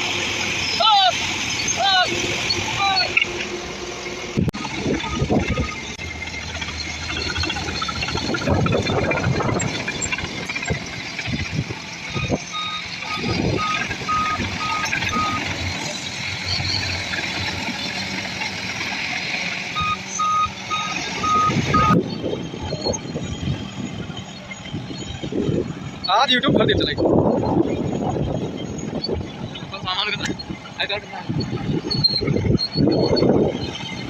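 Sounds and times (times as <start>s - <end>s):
diesel machine engine: 0.0s - 34.0s
reversing alarm beeps: 4.6s - 11.4s, 12.0s - 17.5s, 19.7s - 34.0s.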